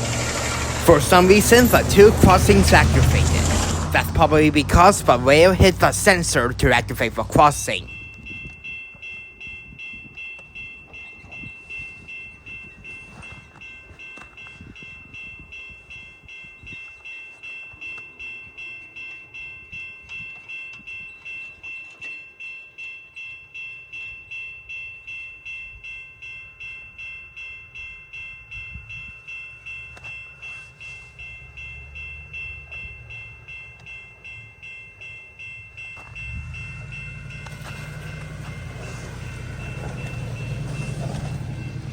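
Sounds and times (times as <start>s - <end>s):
low engine rumble: 0.0s - 8.1s, 30.9s - 41.9s
railroad crossing bells ringing: 0.0s - 41.9s.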